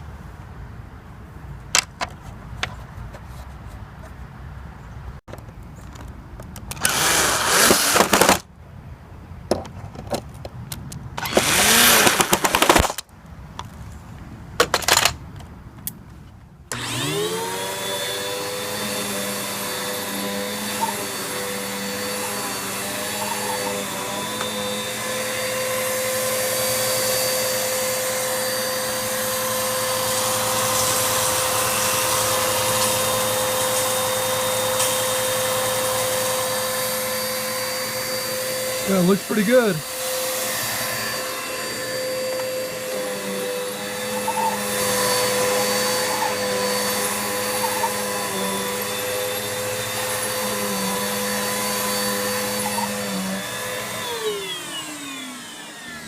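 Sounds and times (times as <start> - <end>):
vacuum cleaner motor whine: 6.8 - 8.4, 11.2 - 12.3, 16.7 - 56.0.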